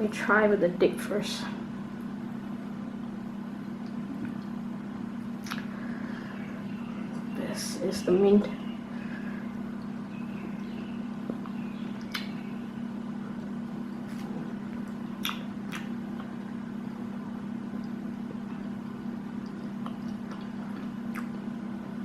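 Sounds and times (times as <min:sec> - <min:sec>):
low hum: 0:00.0 - 0:22.0
wet mouth clicks: 0:05.4 - 0:05.7, 0:12.0 - 0:12.4, 0:14.0 - 0:16.3, 0:19.4 - 0:21.4
chewing food: 0:13.4 - 0:16.6, 0:19.3 - 0:22.0.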